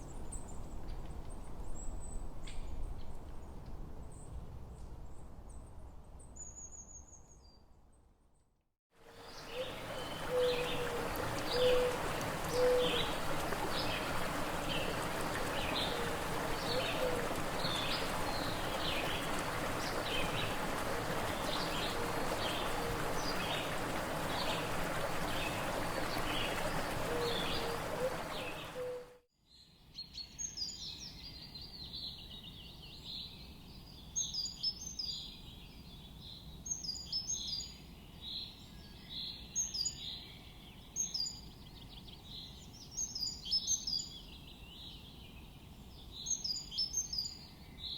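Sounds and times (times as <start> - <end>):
chirping birdsong: 9.4 - 29.1.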